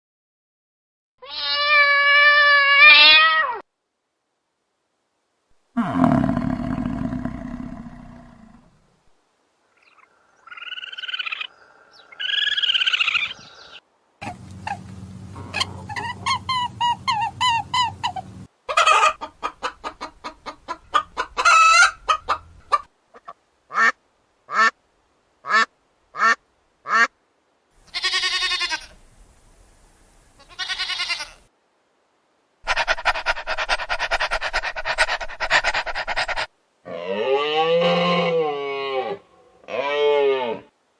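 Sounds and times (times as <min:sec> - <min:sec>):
fowl calling: 0:09.8 - 0:24.7, 0:27.9 - 0:29.0, 0:30.4 - 0:31.5, 0:32.7 - 0:36.5.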